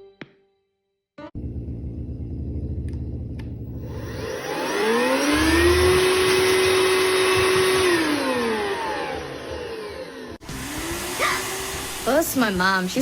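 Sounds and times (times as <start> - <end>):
vacuum cleaner motor whine: 1.4 - 13.0.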